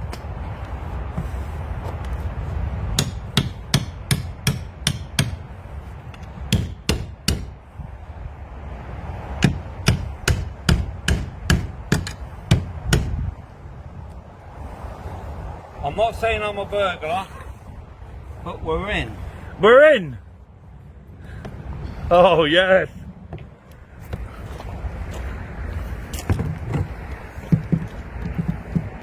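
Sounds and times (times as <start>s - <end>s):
hammer blows: 3.0s - 7.7s, 9.4s - 13.4s.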